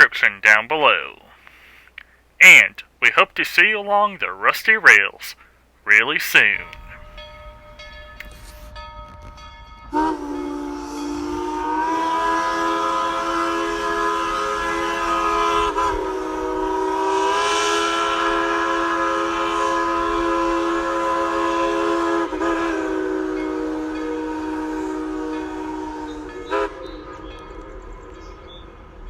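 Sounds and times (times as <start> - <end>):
steam locomotive chime whistle: 6.4 - 29.0.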